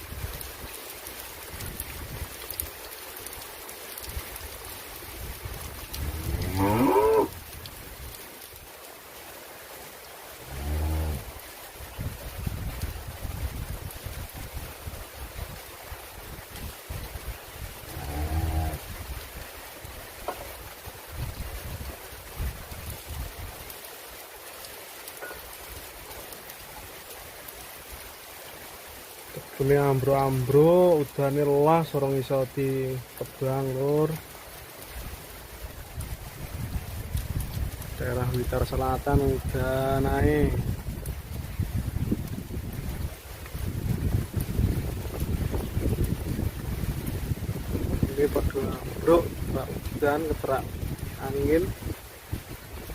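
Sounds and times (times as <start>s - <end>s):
steady rain falling: 0.0s - 52.9s
cow mooing: 6.0s - 7.4s, 10.4s - 11.3s, 17.9s - 18.8s.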